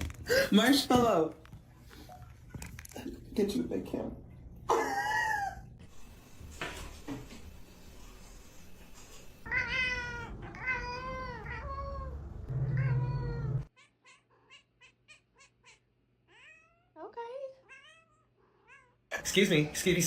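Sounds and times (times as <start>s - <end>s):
cat meowing: 9.5s - 16.9s, 17.6s - 19.0s.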